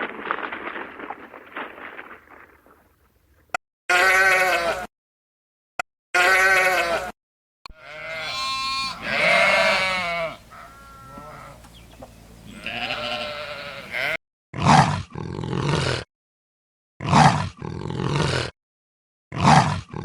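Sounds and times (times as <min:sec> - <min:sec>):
animal calls: 0:07.8 - 0:14.2
rough animal call: 0:07.8 - 0:14.2.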